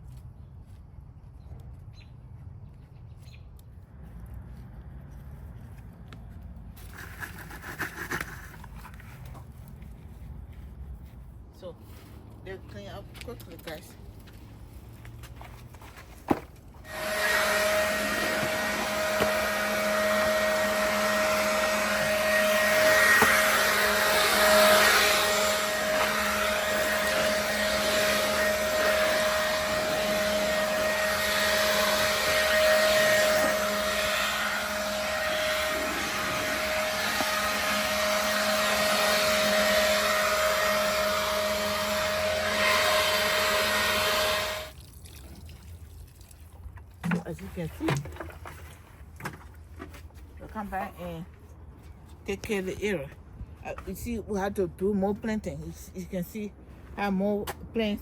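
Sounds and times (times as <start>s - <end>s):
cleaning machine motor whine: 16.8s - 44.7s.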